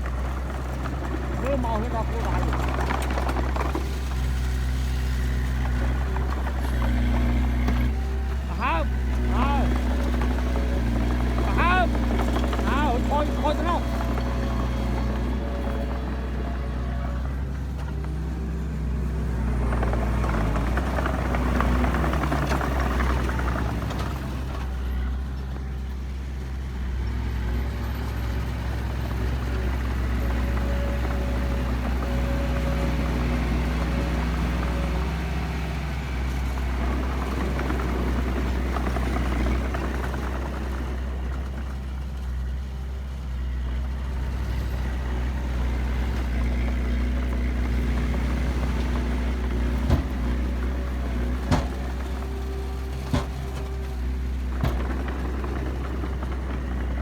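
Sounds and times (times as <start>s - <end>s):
heavy diesel engine under load: 0.0s - 57.0s.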